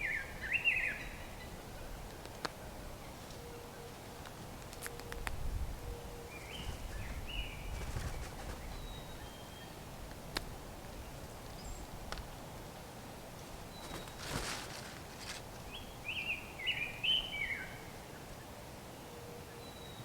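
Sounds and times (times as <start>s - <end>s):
bird calls: 0.0s - 9.9s, 13.4s - 20.0s
rustling: 6.5s - 9.0s, 13.3s - 16.0s.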